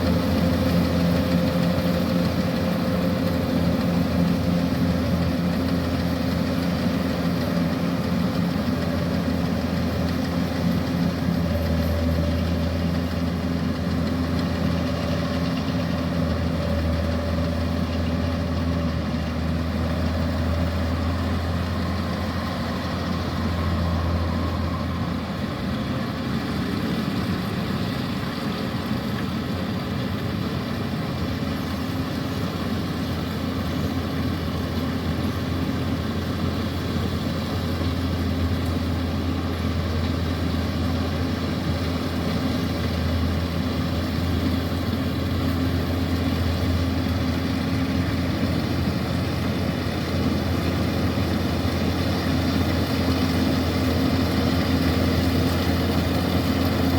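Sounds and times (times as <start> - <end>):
combine harvester engine running: 0.0 - 56.9.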